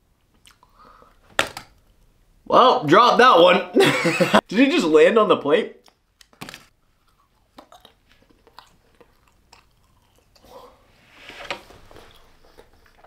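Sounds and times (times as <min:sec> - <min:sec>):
person chewing food: 0:00.2 - 0:01.1, 0:05.8 - 0:10.9, 0:11.9 - 0:13.0.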